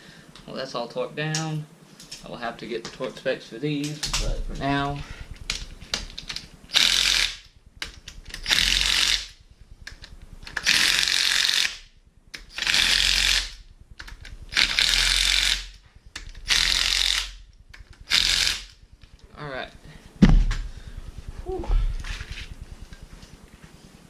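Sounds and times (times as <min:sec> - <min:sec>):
ratchet wrench clicking: 0:05.3 - 0:19.2.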